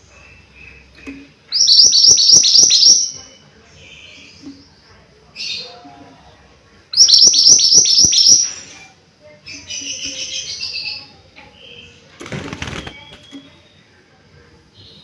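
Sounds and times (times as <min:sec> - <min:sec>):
songbird singing: 0:00.0 - 0:06.3, 0:06.9 - 0:14.1.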